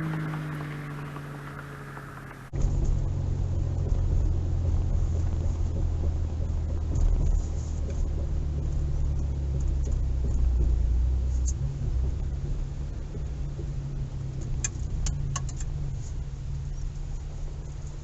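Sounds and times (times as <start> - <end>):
road and wind noise: 0.0 - 18.0
truck engine drone: 0.0 - 18.0.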